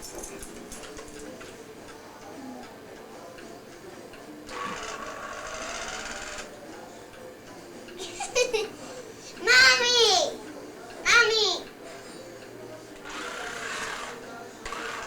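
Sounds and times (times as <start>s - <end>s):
quiet household sounds: 0.0s - 15.0s
small motor whirring: 4.5s - 6.5s, 13.0s - 15.0s.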